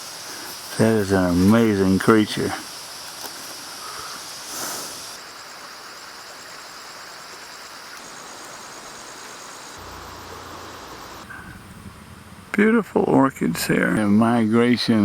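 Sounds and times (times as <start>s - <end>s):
insects buzzing and trilling: 0.0s - 11.8s.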